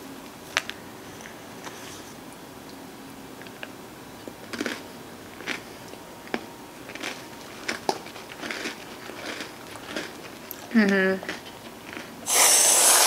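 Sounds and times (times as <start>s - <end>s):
crunchy chewing: 4.5s - 12.3s.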